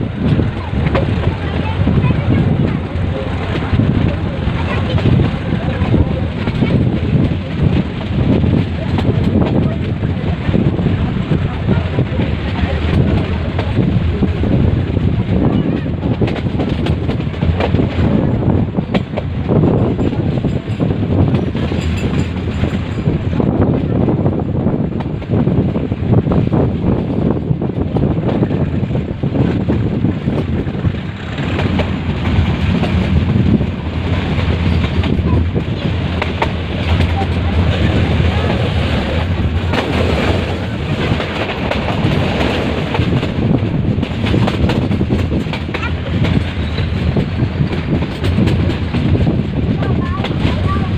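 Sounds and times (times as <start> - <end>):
train wheels rumbling on rails: 0.0 - 50.9
wind buffeting microphone: 0.0 - 50.9
wheels clicking over rail joints: 27.5 - 50.9.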